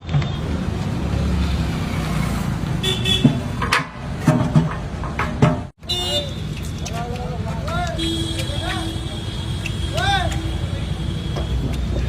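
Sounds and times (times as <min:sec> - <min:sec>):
traffic rumble: 0:00.0 - 0:12.0
car horn toot: 0:02.8 - 0:03.4, 0:05.8 - 0:06.6, 0:08.0 - 0:11.7.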